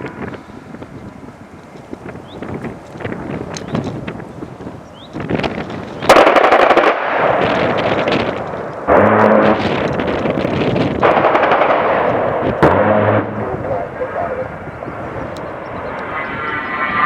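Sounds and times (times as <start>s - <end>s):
rotary cannon firing bursts: 6.1s - 13.4s.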